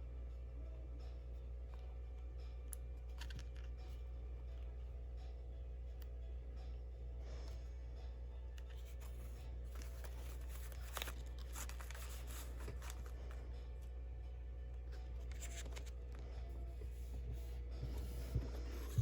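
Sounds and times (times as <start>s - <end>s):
steady low hum: 0.0s - 19.0s
packaging rustling and crinkling: 8.9s - 13.3s.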